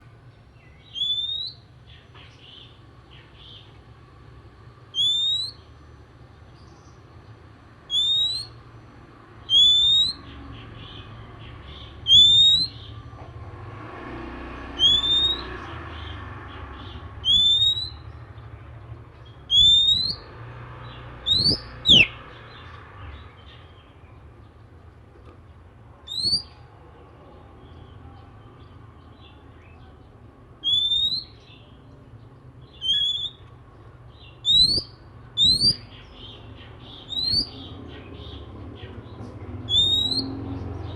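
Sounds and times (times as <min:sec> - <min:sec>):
bird singing rising whistle: 0:00.8 - 0:01.7, 0:04.9 - 0:05.7, 0:07.9 - 0:08.6, 0:09.4 - 0:10.4, 0:12.0 - 0:13.0, 0:14.8 - 0:15.7, 0:17.2 - 0:18.2, 0:19.5 - 0:20.4, 0:21.2 - 0:22.3, 0:26.1 - 0:26.6, 0:30.6 - 0:31.6, 0:32.7 - 0:33.4, 0:34.3 - 0:36.0, 0:37.0 - 0:37.7, 0:39.7 - 0:40.4.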